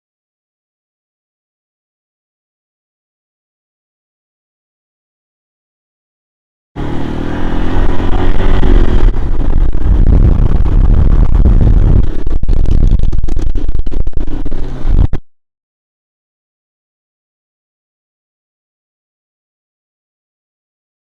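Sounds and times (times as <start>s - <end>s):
atv engine revving: 6.8s - 15.2s.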